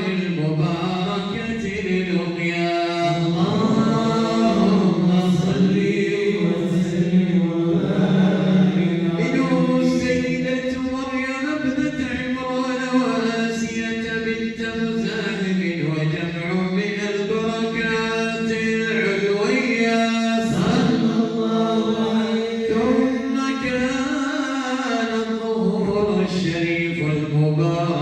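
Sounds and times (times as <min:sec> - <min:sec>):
men chanting in unison: 0:00.0 - 0:10.8, 0:16.9 - 0:28.0.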